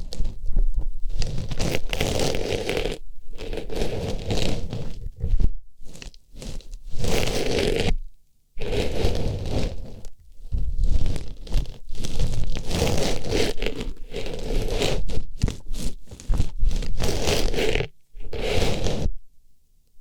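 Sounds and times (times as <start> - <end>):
rustling and scraping in ear: 0.0 - 19.2.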